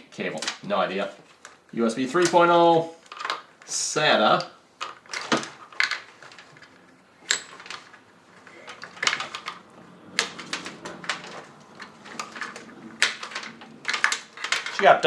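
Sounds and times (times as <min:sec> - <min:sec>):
plastic cable connectors clicking: 0:03.0 - 0:15.0.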